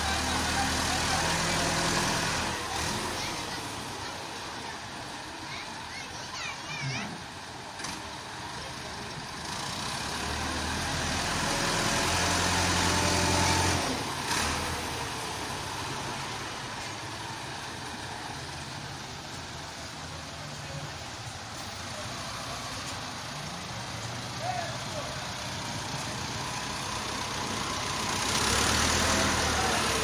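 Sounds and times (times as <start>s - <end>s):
tractor engine revving: 0.0s - 4.4s, 7.4s - 19.7s, 21.8s - 30.0s.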